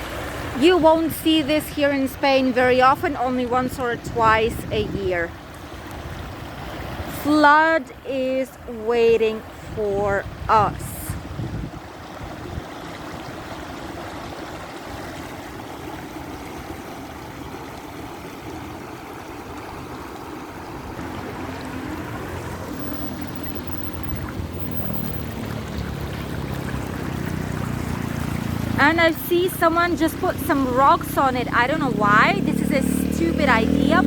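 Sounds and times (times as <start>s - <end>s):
floodwater rushing: 0.0s - 34.0s.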